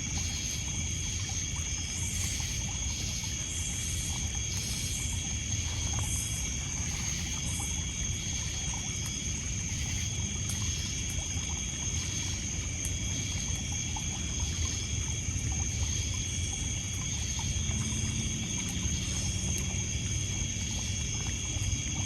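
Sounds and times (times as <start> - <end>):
insects chorus: 0.0 - 22.0.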